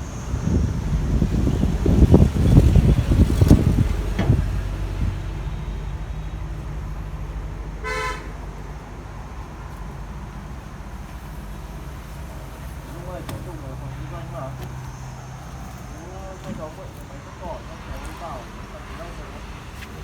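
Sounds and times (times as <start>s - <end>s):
excavator diesel engine rumbling: 0.0s - 20.0s
vehicle horn toot: 7.8s - 8.4s.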